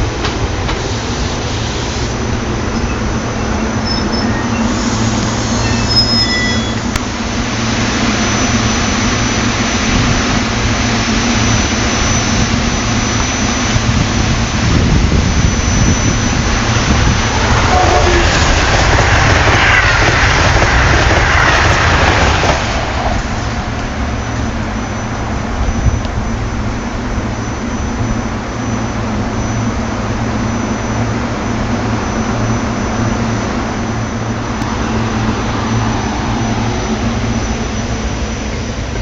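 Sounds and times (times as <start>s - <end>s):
train low rumble: 0.0s - 39.0s
train rushing roar: 0.0s - 39.0s.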